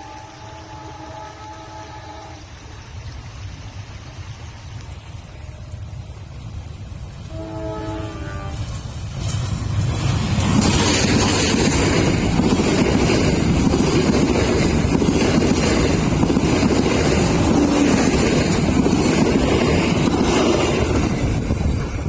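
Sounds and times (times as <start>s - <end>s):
train passing close by: 0.0s - 22.0s
wind buffeting microphone: 8.4s - 22.0s.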